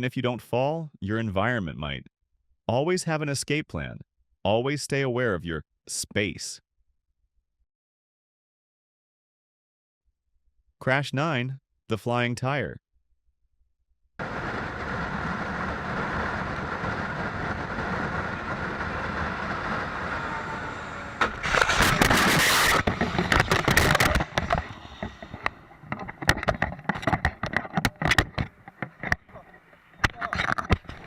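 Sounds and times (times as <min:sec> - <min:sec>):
loud impact and clatter: 0:14.2 - 0:29.2
motorcycle engine at speed: 0:14.2 - 0:29.6
wind noise: 0:14.2 - 0:31.0
irregular knocks and scrapes: 0:21.2 - 0:31.0.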